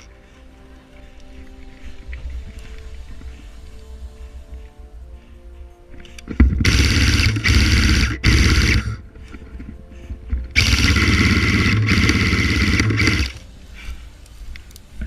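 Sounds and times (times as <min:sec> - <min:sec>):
airsoft gun automatic bursts: 0:06.4 - 0:09.0, 0:10.6 - 0:13.4.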